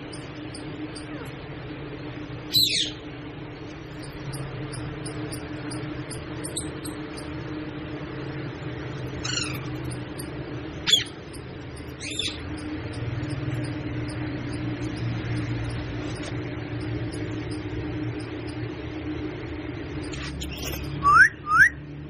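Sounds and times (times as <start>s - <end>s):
steady hum: 0.0s - 22.0s
parrot calling: 2.5s - 3.0s, 4.0s - 7.3s, 9.0s - 18.6s, 20.0s - 21.8s.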